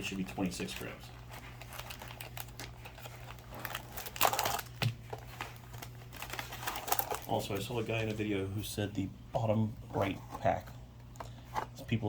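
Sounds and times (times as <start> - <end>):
foil packs crinkling: 0.0 - 8.6.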